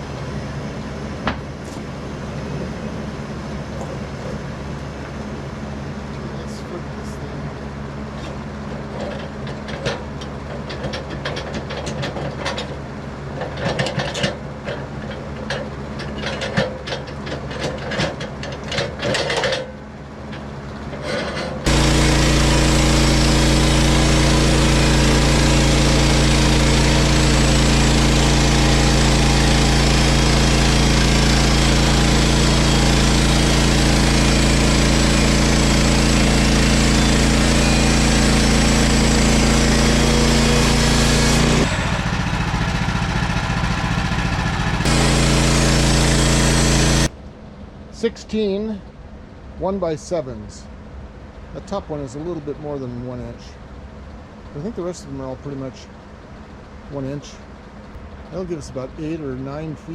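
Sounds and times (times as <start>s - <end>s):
small gasoline engine running: 20.3s - 47.1s.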